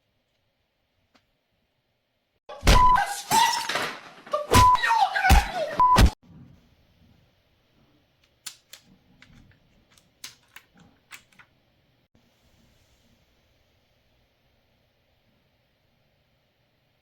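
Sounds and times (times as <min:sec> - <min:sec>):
small hard parts clicking: 0:08.2 - 0:11.6.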